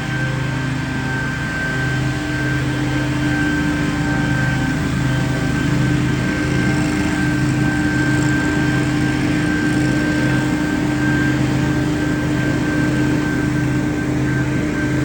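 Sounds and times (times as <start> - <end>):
steady whine: 0.0 - 15.0
yard machine engine running: 0.0 - 15.0.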